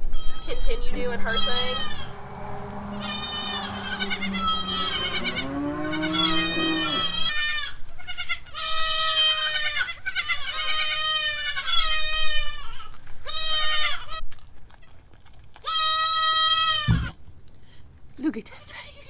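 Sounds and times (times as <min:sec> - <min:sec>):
goat kids bleating: 0:00.0 - 0:14.2, 0:15.7 - 0:17.1.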